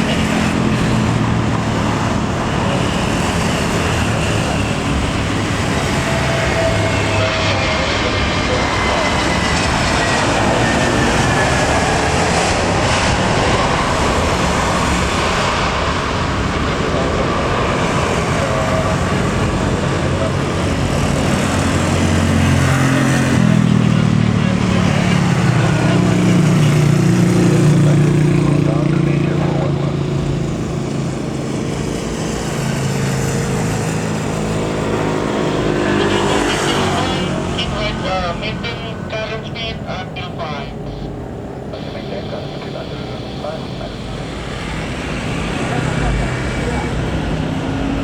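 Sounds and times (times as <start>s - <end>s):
jet airliner roaring past: 0.0s - 48.0s
low hum tones: 37.0s - 44.9s.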